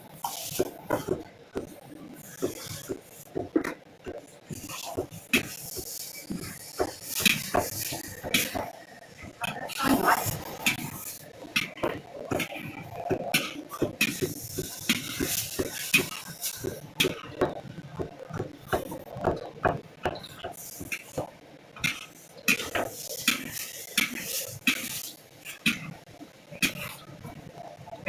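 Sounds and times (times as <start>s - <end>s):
hiss: 4.4s - 8.7s, 13.4s - 17.2s.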